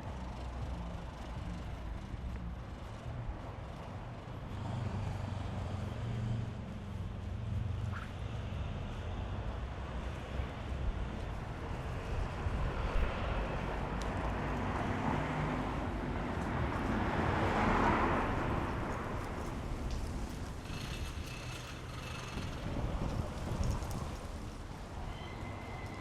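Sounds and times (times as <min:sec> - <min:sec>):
vehicle passing: 0:00.0 - 0:26.0
wind buffeting microphone: 0:10.3 - 0:14.9, 0:15.6 - 0:26.0.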